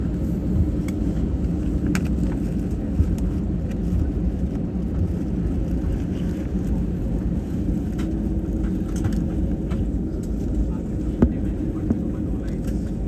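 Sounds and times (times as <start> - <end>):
airplane cabin low rumble: 0.0 - 13.0.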